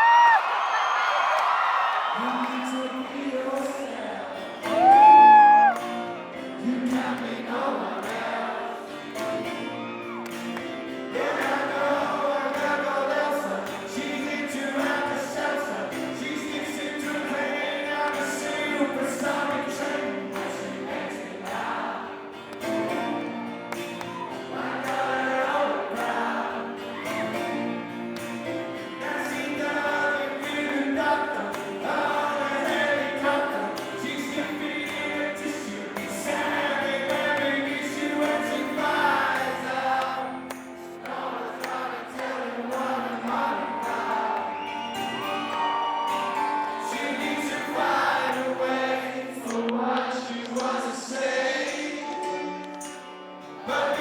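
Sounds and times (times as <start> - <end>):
loud high cry: 0.0 - 2.2, 4.7 - 6.2, 43.6 - 47.3
many voices singing: 2.1 - 54.0
acoustic rock band playing: 4.2 - 49.2, 51.4 - 54.0.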